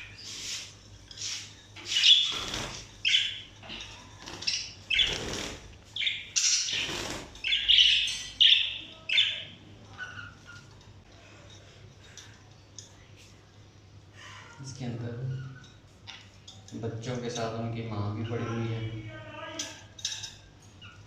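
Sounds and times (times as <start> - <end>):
parrots squawking: 1.2 - 10.8
wings flapping: 2.2 - 2.9, 4.2 - 5.8, 6.7 - 7.4.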